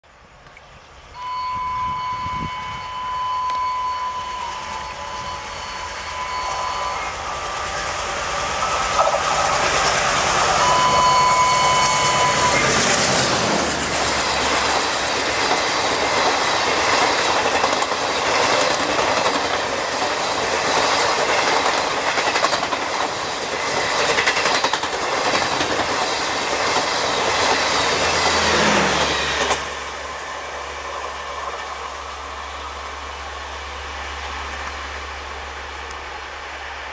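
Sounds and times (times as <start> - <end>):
train passing at high speed: 0.1 - 36.9
locomotive horn blast: 1.2 - 7.3.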